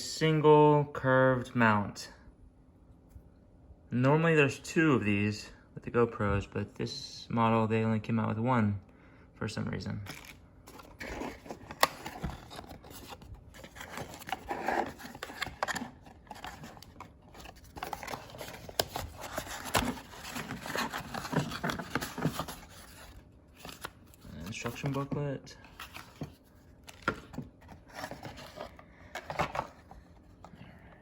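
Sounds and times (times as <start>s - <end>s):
packaging rustling and scraping: 10.1s - 30.6s.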